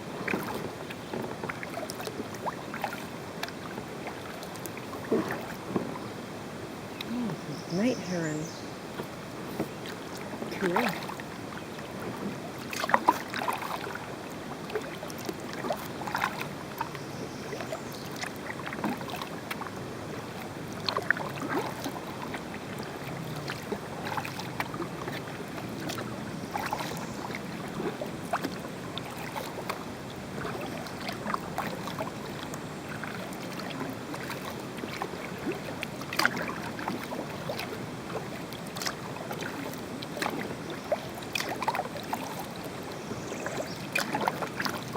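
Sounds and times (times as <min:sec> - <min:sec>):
paddle dipping into water: 0:00.0 - 0:44.9
water splashes and drips: 0:00.2 - 0:06.0, 0:08.9 - 0:44.9
steady background hiss: 0:04.5 - 0:11.7.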